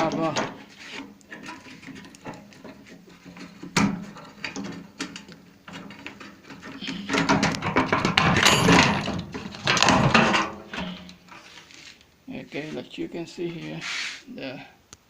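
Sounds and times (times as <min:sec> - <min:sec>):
metal parts clicking and rattling: 0:01.3 - 0:11.4.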